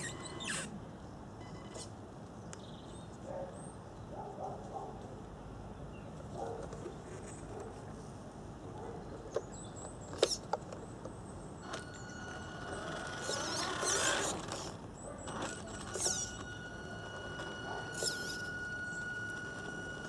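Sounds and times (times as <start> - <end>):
small electric motor whine: 0.0 - 0.8, 11.6 - 20.0.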